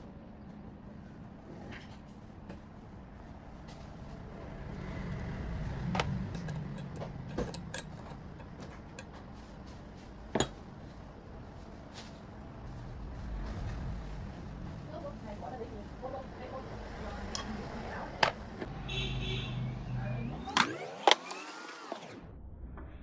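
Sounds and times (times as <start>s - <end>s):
tools clicking and knocking: 5.9s - 9.3s.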